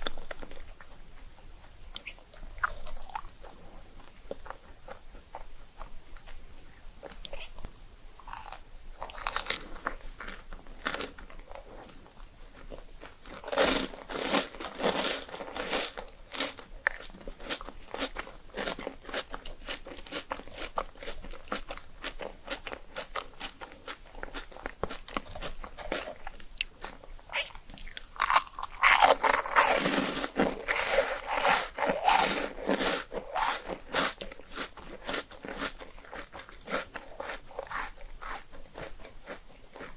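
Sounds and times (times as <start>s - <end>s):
crunching rice cakes: 8.1s - 39.9s.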